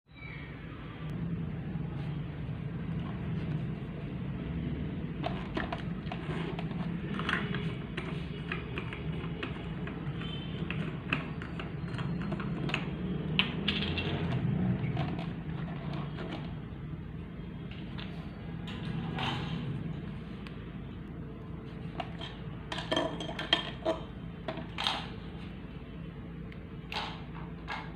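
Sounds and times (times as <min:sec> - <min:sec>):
small hard parts clicking: 0:05.2 - 0:16.5.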